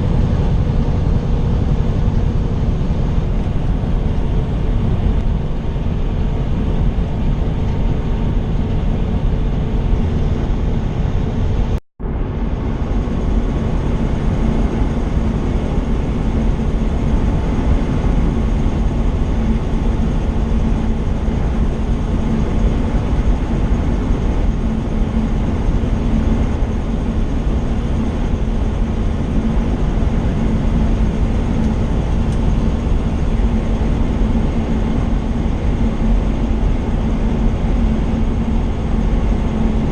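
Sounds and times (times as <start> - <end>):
road and engine rumble: 0.0 - 39.9
steady hum: 0.0 - 39.9.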